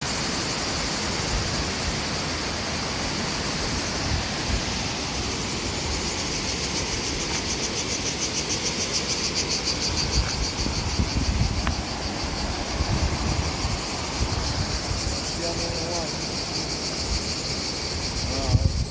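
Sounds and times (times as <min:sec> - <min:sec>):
waterfall rushing: 0:00.0 - 0:18.2
cicadas buzzing: 0:00.0 - 0:18.9.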